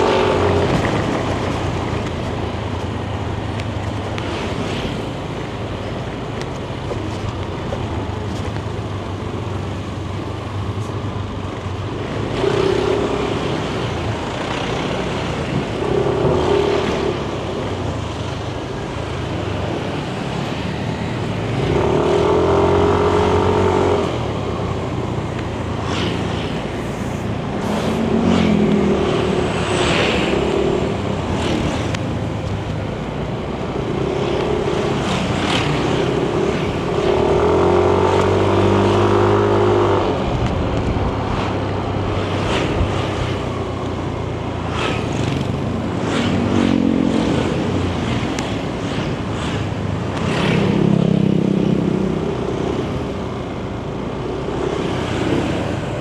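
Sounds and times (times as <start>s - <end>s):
road and wind noise: 0.0s - 56.0s.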